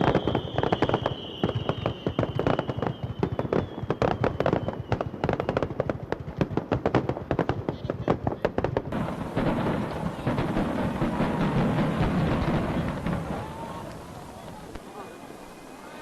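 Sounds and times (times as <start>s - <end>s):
faint falling whistle: 0.0s - 5.6s
rumble of continuous explosions: 0.0s - 14.9s
fireworks crackling bangs: 0.0s - 16.0s.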